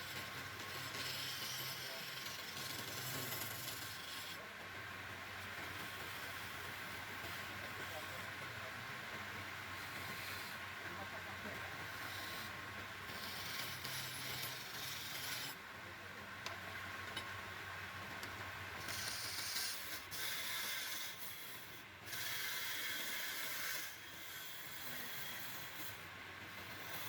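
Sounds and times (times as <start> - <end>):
lathe tool scraping wood: 0.0 - 4.4, 9.7 - 10.6, 11.8 - 15.6, 18.8 - 27.0.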